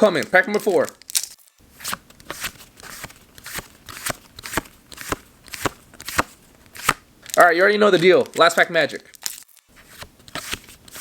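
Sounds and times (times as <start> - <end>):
trading cards snapping: 0.9 - 7.4, 9.2 - 11.0.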